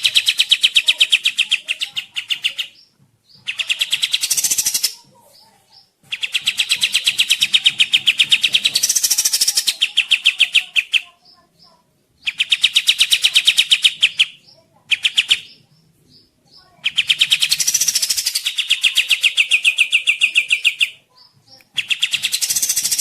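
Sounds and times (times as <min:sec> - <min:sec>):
songbird rapid trill: 0:00.0 - 0:23.0.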